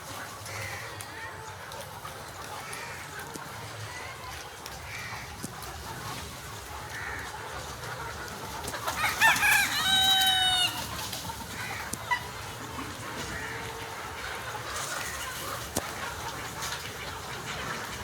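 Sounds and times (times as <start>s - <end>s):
chickens clucking: 0.0s - 18.0s
rooster crowing: 9.0s - 10.9s.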